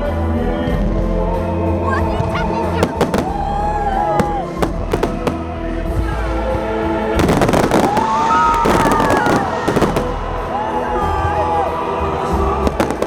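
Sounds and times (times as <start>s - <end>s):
loud music: 1.7s - 13.0s
firework bangs and crackle: 2.2s - 13.0s.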